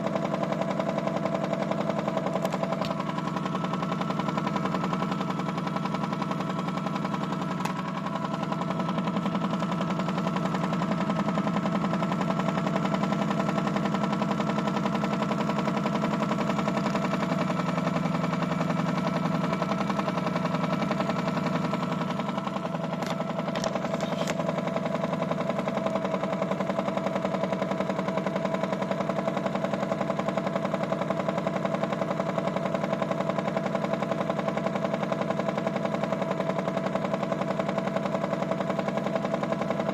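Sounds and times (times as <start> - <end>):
toy washing machine motor buzzing: 22.9 - 24.6.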